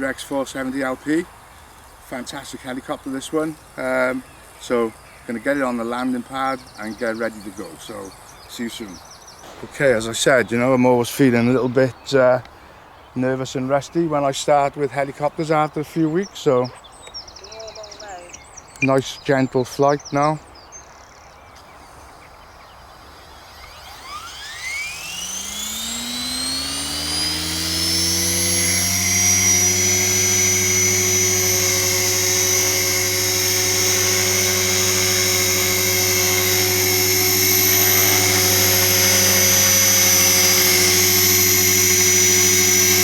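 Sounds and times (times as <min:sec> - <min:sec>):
rc helicopter motor and rotor whine: 0:00.0 - 0:11.6, 0:21.1 - 0:43.0.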